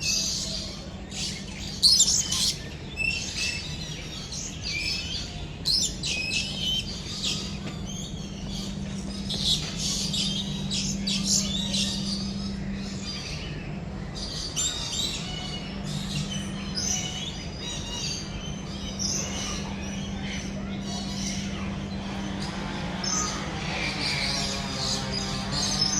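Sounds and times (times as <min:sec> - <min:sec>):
low steady hum: 0:00.0 - 0:25.9
many birds chirping: 0:00.0 - 0:25.9.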